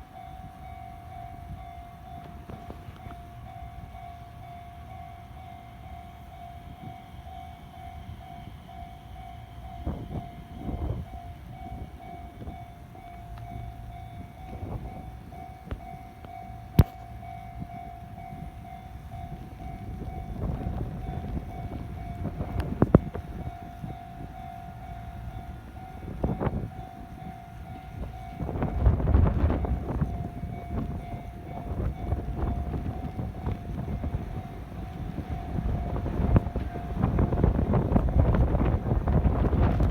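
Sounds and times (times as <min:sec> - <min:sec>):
electric train rumble: 0:00.0 - 0:39.9.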